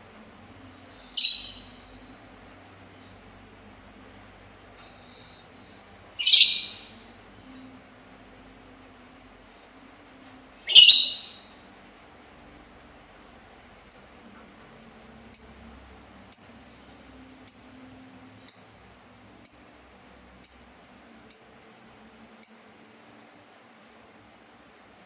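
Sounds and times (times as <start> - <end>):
songbird calling: 0.8 - 2.0, 4.9 - 7.1, 10.6 - 11.5, 13.9 - 14.4, 15.3 - 19.8, 20.4 - 21.8, 22.4 - 23.2.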